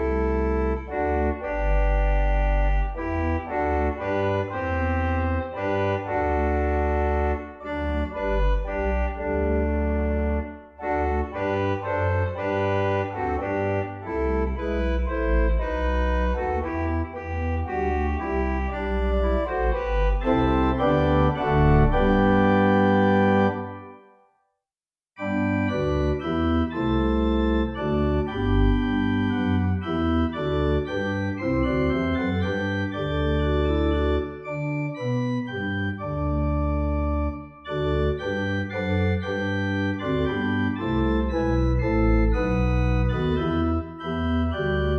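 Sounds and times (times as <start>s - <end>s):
organ playing a hymn: 0.0s - 24.1s, 25.2s - 44.9s.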